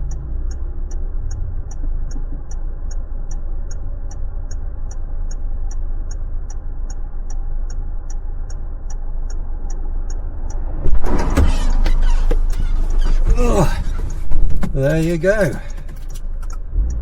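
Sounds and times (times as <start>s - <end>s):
high even ticking: 0.0s - 17.0s
motorbike engine rumble: 10.6s - 17.0s.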